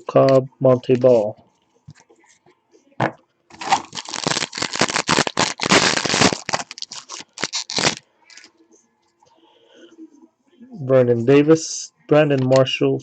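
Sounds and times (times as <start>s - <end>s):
wrapper crinkling: 3.5s - 8.5s
wrapper ripping: 3.5s - 8.5s.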